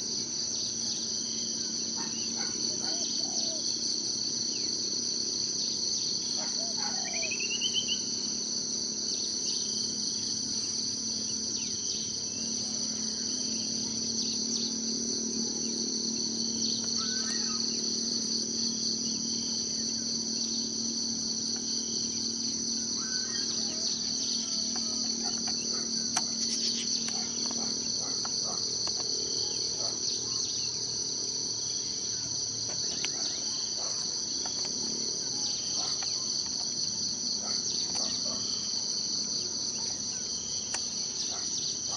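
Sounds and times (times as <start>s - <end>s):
insects trilling: 0.0s - 41.9s
faint bird calls: 16.7s - 17.8s.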